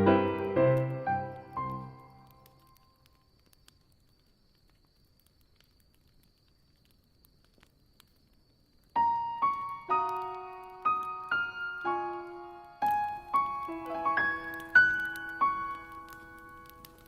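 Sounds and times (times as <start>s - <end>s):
slow solo piano melody: 0.0s - 2.3s, 9.0s - 17.0s
faint campfire crackling: 0.0s - 17.0s.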